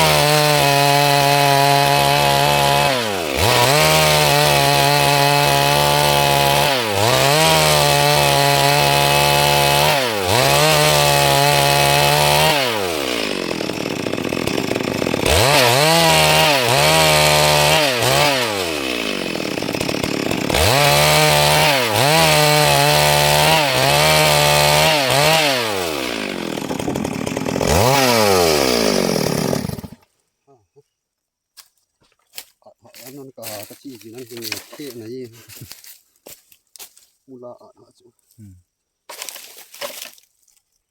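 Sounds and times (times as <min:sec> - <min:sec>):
chainsaw engine revving: 0:00.0 - 0:30.0, 0:33.7 - 0:35.8.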